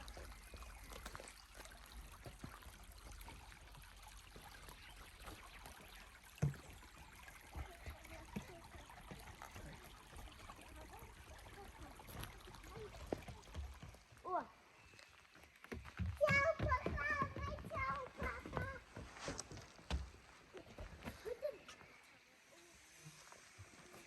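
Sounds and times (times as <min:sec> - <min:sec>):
stream trickling: 0:00.0 - 0:24.0.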